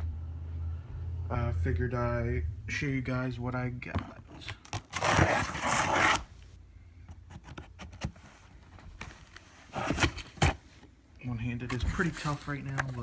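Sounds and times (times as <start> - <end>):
cardboard tearing rustle: 4.8 - 6.3.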